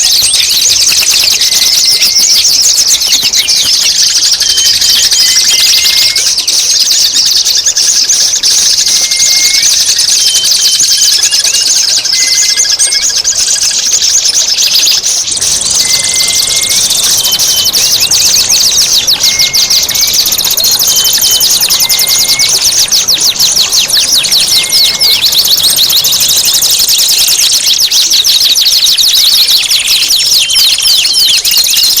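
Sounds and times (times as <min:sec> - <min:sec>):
songbird chattering trills: 0:00.0 - 0:32.0
short whistled notes: 0:08.9 - 0:13.7, 0:14.6 - 0:28.0.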